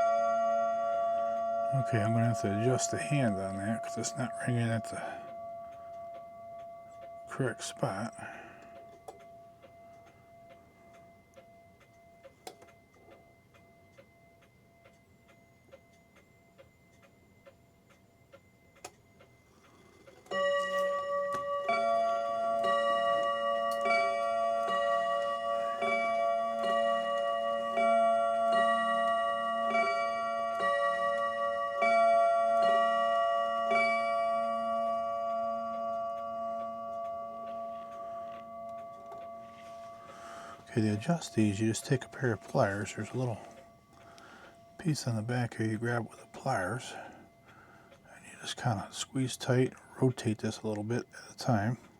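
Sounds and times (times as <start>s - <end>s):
clock strike ringing: 0.0s - 17.1s, 20.3s - 51.9s
clock ticking: 0.0s - 51.9s.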